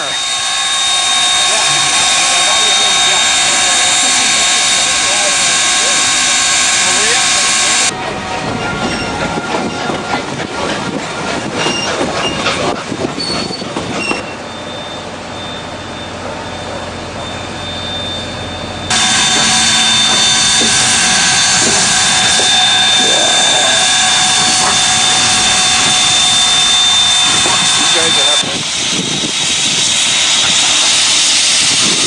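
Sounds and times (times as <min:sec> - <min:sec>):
train clanking and knocking: 0:00.0 - 0:32.0
train wheel squeals: 0:00.0 - 0:32.0
loud rushing noise: 0:18.9 - 0:32.0.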